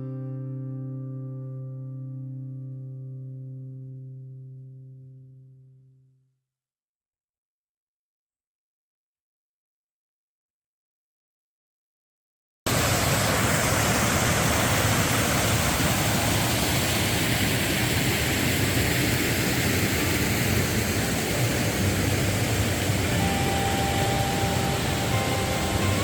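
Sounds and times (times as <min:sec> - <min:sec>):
stream rushing: 0:12.7 - 0:26.0.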